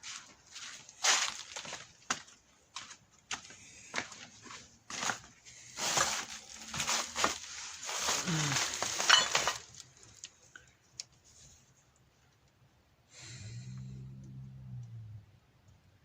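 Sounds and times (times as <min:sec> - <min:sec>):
metal parts scraping and clinking: 0:05.9 - 0:09.8.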